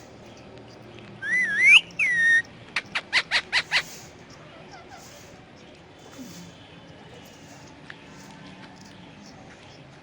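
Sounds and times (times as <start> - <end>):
parrot whistling: 1.2 - 4.0.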